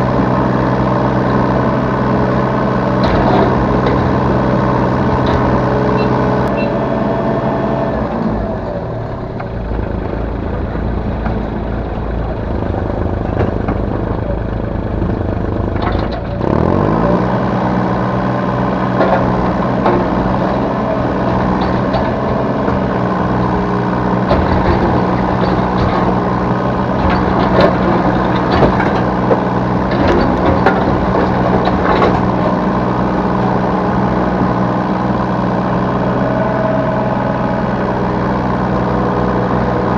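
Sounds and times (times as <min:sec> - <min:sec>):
excavator diesel engine running: 0:00.0 - 0:39.9
knocks and clunks from digging: 0:03.0 - 0:04.4, 0:18.9 - 0:23.5, 0:24.2 - 0:32.6.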